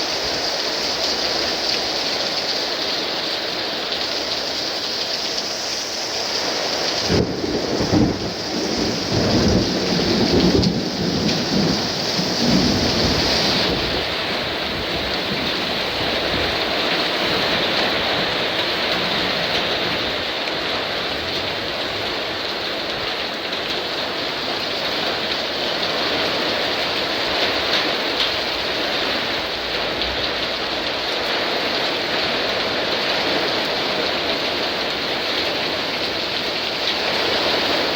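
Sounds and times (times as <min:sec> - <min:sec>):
heavy rain: 0:00.0 - 0:37.9
thunder rumbling: 0:07.0 - 0:22.6.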